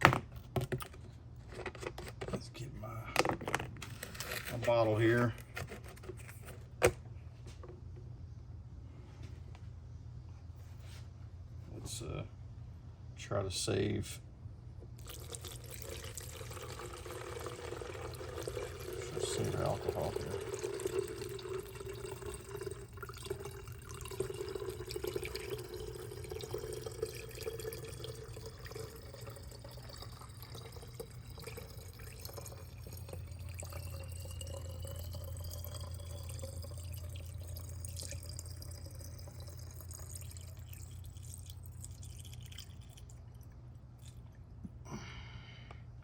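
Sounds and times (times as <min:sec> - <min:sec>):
liquid pouring and dripping: 0:15.0 - 0:44.7.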